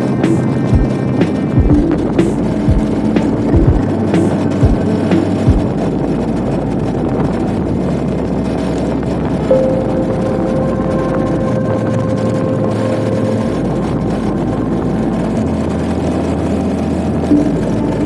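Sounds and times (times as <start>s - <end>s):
motorcycle engine running: 0.0s - 7.1s
wind noise: 0.0s - 18.0s.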